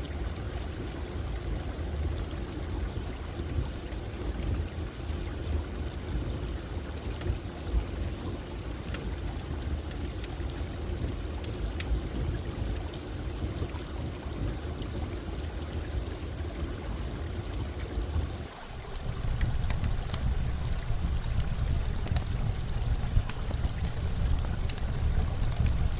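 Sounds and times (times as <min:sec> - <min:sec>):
running water: 0:00.0 - 0:25.9
campfire crackling: 0:18.6 - 0:25.9.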